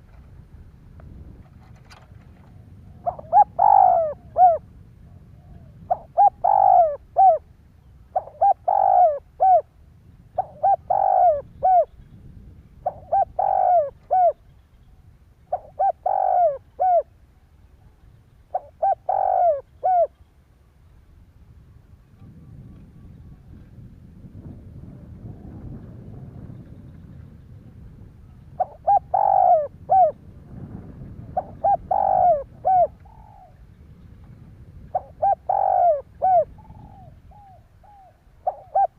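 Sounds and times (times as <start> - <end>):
dove cooing: 1.8 - 7.5, 8.1 - 9.8, 10.4 - 12.1, 12.8 - 14.6, 15.5 - 17.2, 18.5 - 20.2, 28.2 - 33.7, 34.8 - 38.9.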